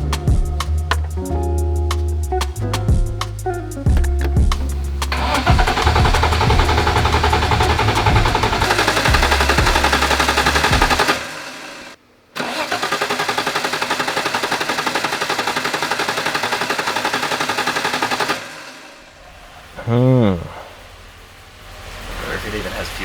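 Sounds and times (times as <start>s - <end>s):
starter motor cranking engine: 4.6s - 19.6s.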